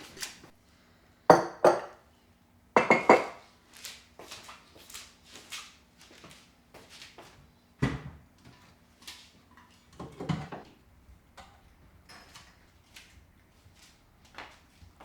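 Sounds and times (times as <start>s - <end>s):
household items knocking: 1.3s - 2.0s, 2.8s - 3.4s.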